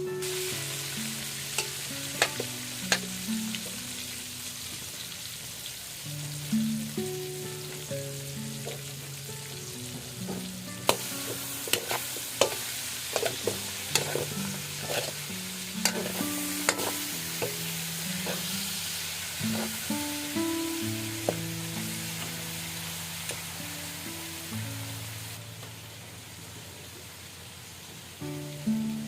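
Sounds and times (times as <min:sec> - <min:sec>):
soft background music: 0:00.0 - 0:05.3, 0:06.0 - 0:25.7, 0:28.2 - 0:29.0
meat sizzling in a pan: 0:00.0 - 0:29.0
utensil knocking against pan: 0:15.8 - 0:17.6.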